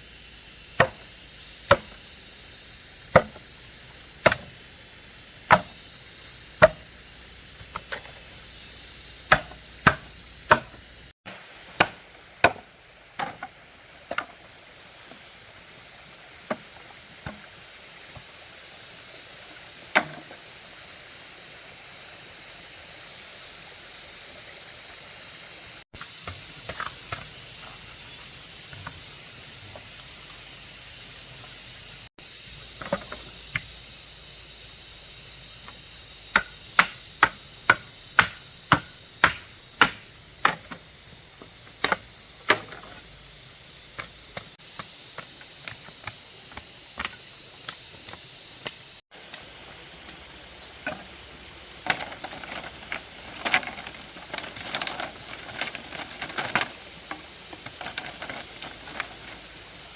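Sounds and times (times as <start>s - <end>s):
high-pitched hiss: 0.0s - 59.9s
hand tool striking wood: 0.8s - 2.0s, 3.1s - 3.6s, 4.2s - 4.6s, 5.5s - 5.9s, 6.6s - 6.9s, 9.2s - 10.9s, 11.8s - 13.5s, 36.3s - 40.8s.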